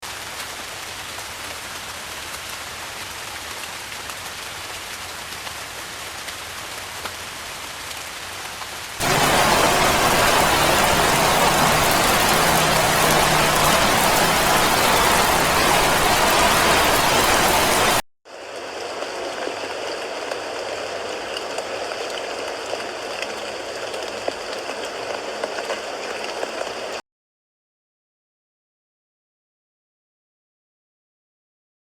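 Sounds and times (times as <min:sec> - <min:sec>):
rain falling: 0:09.0 - 0:18.0.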